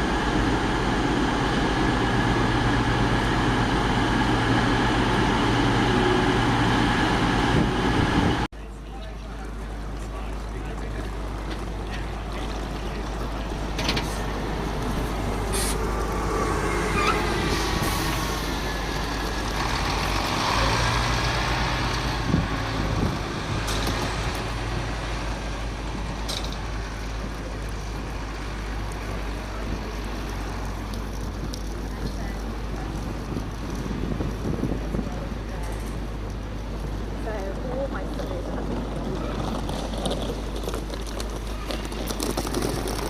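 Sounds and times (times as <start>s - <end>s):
heavy vehicle engine running: 0.0s - 43.0s.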